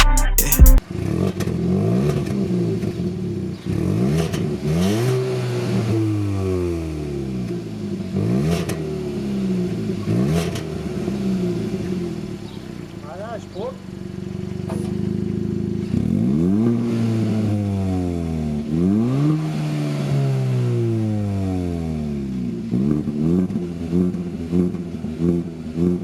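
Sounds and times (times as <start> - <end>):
loud music: 0.0 - 0.8
car engine revving: 0.8 - 26.0.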